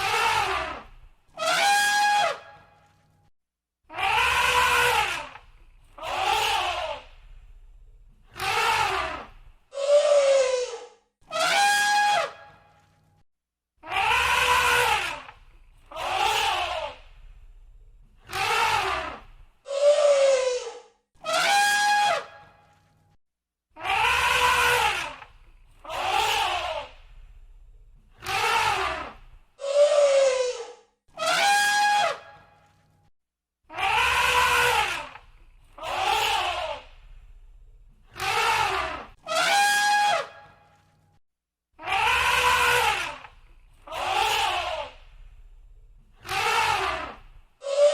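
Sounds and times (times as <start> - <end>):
elephant trumpeting: 0.0 - 0.8, 1.4 - 2.5, 4.0 - 7.2, 8.3 - 12.6, 13.9 - 17.1, 18.3 - 22.5, 23.8 - 27.2, 28.2 - 32.4, 33.7 - 36.9, 38.1 - 40.8, 41.8 - 45.4, 46.2 - 47.9.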